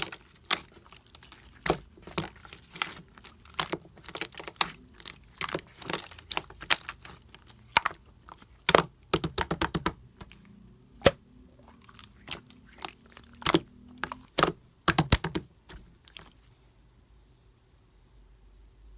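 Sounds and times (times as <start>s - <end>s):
slime squished by hand: 0.0s - 16.4s.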